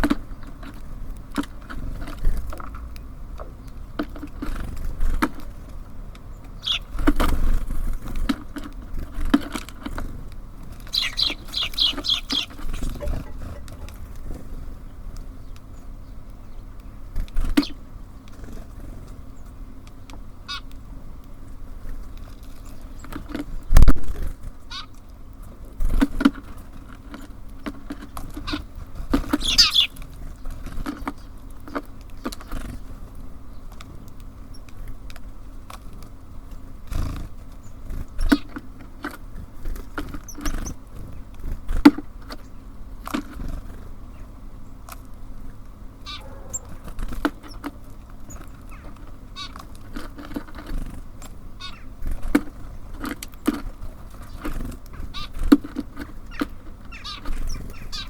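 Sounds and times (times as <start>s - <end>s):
birds pecking and landing: 0.0s - 58.0s
short high bird call: 10.9s - 13.7s, 29.4s - 29.9s, 46.1s - 46.8s.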